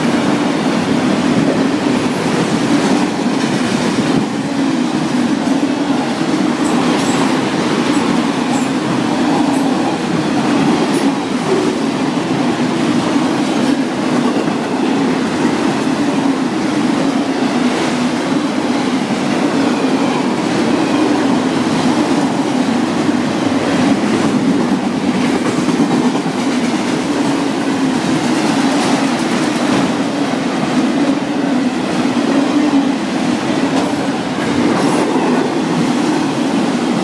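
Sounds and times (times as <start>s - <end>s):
steel wheels rumbling on rail: 0.0s - 37.0s
wheels clicking on track: 19.2s - 30.9s.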